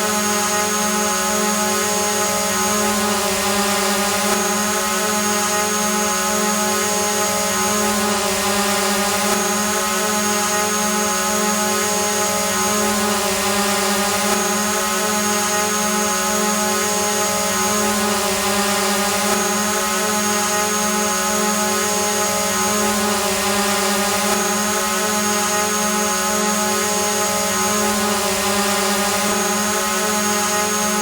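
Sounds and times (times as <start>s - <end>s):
drone buzzing hum: 0.0s - 31.0s.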